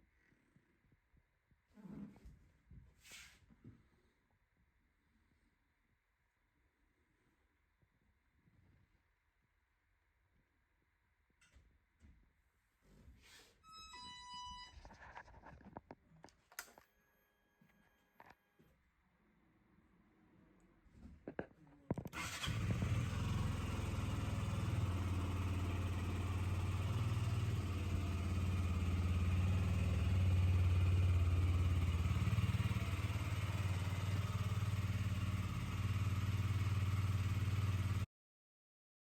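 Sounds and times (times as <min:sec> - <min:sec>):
motorcycle engine starting and idling: 0:22.0 - 0:38.1.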